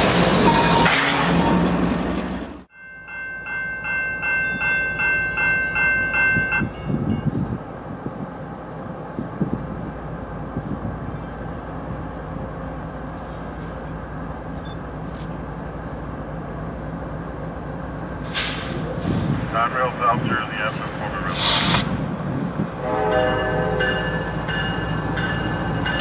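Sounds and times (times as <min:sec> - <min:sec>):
train noise: 0:00.0 - 0:26.0
bell ringing: 0:02.7 - 0:07.0
diesel locomotive rumble: 0:03.3 - 0:26.0.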